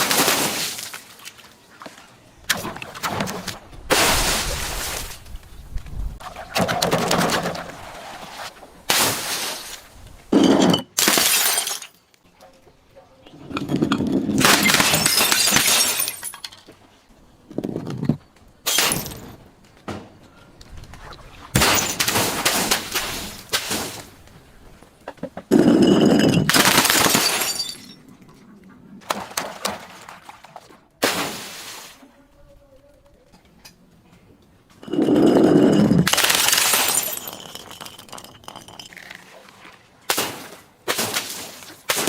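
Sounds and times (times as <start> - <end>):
glass bottles breaking and crushing: 10.3 - 12.1, 13.5 - 16.7, 18.6 - 19.4, 21.6 - 23.0, 25.5 - 28.0, 34.8 - 39.2.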